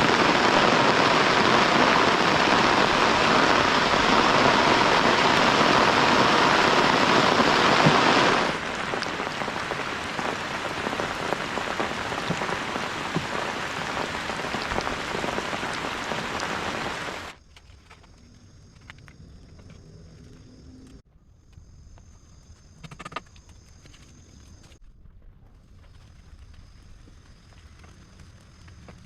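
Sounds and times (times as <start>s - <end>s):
heavy rain: 0.0s - 17.4s.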